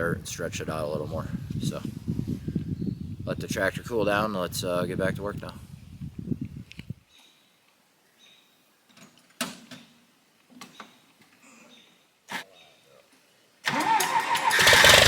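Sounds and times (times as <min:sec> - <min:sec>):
tractor engine starting and running: 0:13.7 - 0:15.0.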